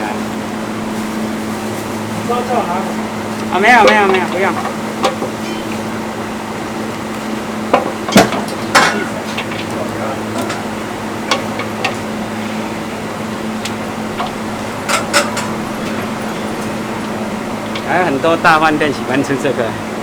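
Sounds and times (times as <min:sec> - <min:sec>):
steady mechanical hum: 0:00.0 - 0:20.0
kitchen utensils and cookware clattering: 0:03.8 - 0:05.9, 0:13.7 - 0:18.8.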